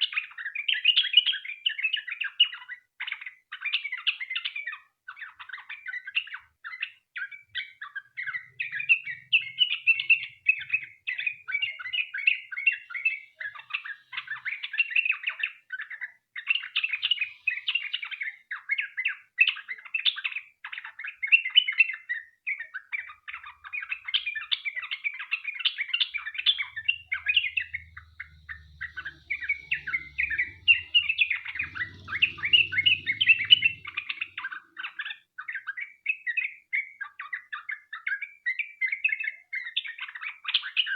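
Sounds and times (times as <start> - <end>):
bulbul singing chattering notes: 25.9 - 34.5.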